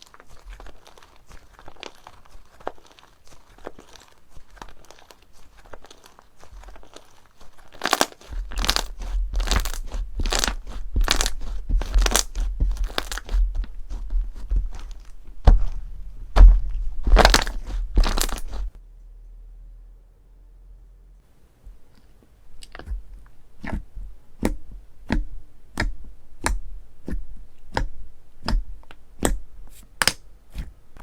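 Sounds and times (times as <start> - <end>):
slime squished by hand: 0.0 - 18.7
dull low thuds: 8.3 - 18.8.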